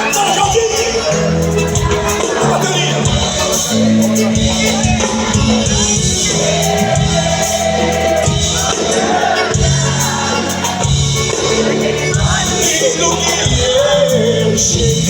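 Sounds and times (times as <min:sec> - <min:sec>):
live band playing: 0:00.0 - 0:15.0
person singing: 0:00.0 - 0:15.0.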